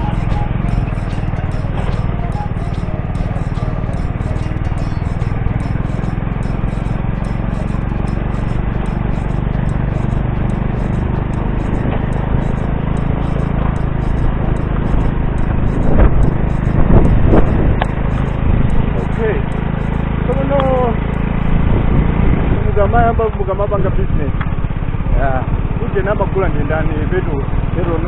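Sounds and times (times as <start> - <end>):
motorcycle engine running: 0.0 - 21.8.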